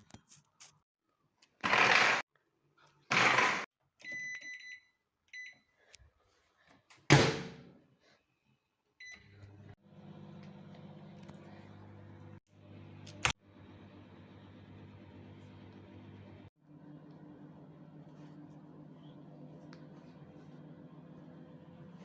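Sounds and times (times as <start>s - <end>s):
microwave oven humming: 9.0s - 22.0s.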